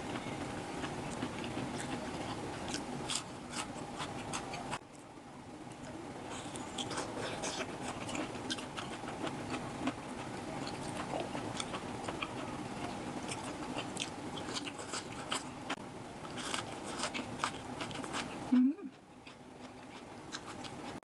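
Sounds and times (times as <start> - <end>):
person chewing and biting: 0.2 - 4.8, 6.4 - 10.0, 10.6 - 15.5, 16.2 - 18.3.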